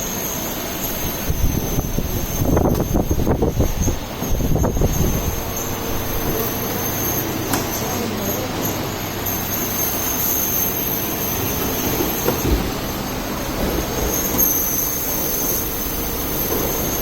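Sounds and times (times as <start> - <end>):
machine humming with high whine: 0.0 - 17.0.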